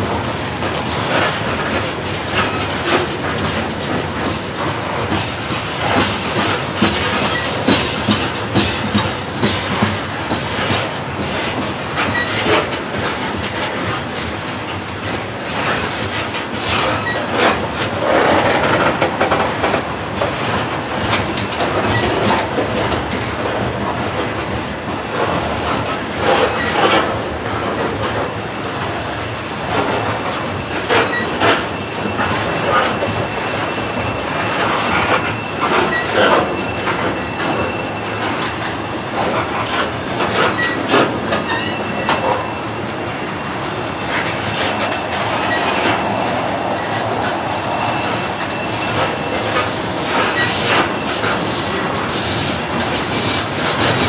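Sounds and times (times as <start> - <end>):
freight train rumble: 0.0 - 54.0
steel wheels clacking over rail joints: 0.0 - 54.0.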